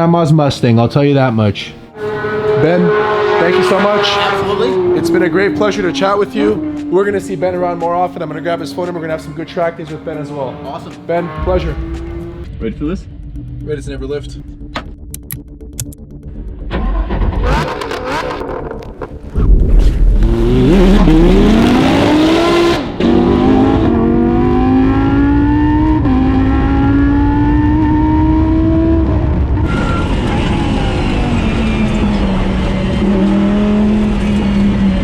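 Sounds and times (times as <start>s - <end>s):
race car engine accelerating: 1.9s - 8.3s, 11.1s - 12.5s, 16.6s - 35.0s.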